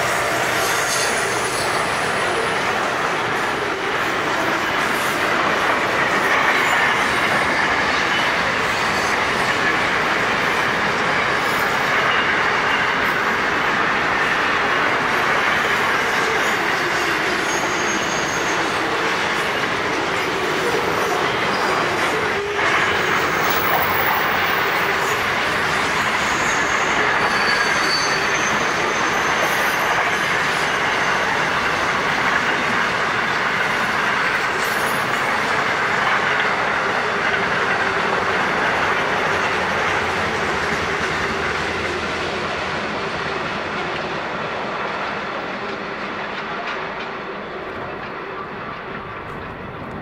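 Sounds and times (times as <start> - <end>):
wheel squeals: 16.1 - 19.7, 20.7 - 31.4.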